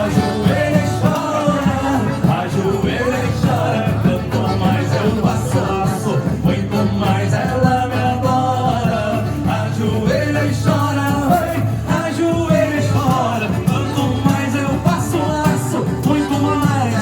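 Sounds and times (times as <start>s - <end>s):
small band playing: 0.0s - 17.0s.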